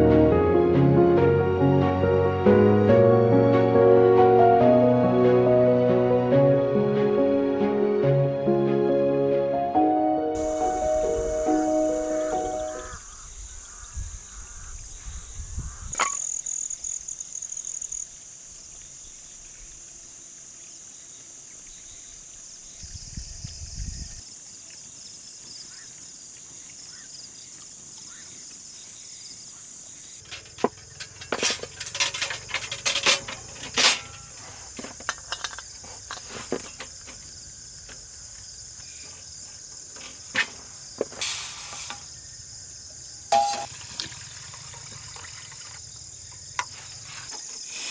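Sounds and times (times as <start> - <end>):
crickets chirping: 10.4 - 47.9.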